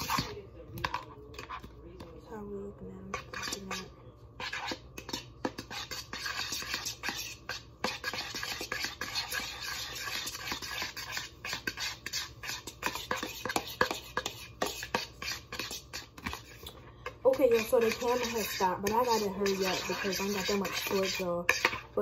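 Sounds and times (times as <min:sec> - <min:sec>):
fork scraping a dish: 0:00.0 - 0:02.2, 0:03.1 - 0:22.0.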